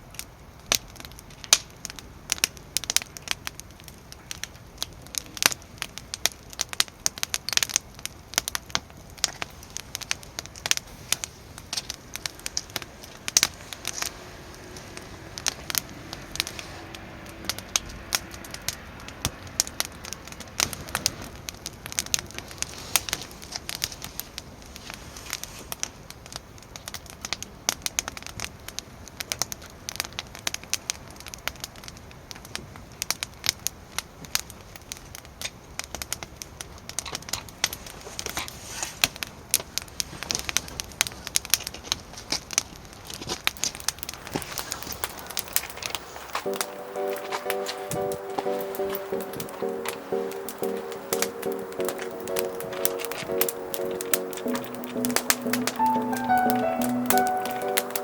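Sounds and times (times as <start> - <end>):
wood fire crackling: 0.2 - 18.8, 39.0 - 58.0.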